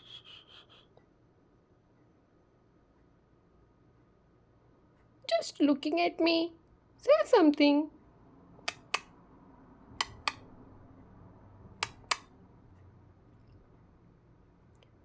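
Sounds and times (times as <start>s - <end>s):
short sharp clicks: 11.8s - 12.3s.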